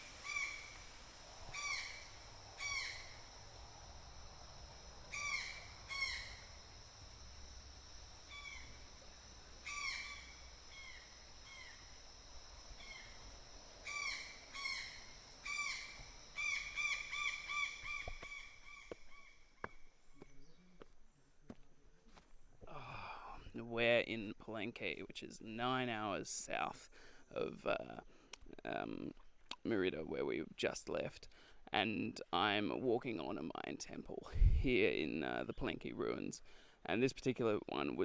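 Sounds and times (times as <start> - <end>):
faint high hum: 0.0 - 19.0
birds calling: 0.0 - 21.2.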